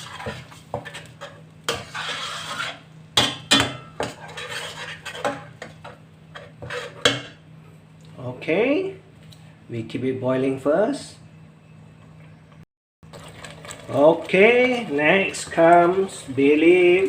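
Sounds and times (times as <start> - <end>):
utensil scraping a cooking pot: 0.0 - 2.9, 4.0 - 7.4.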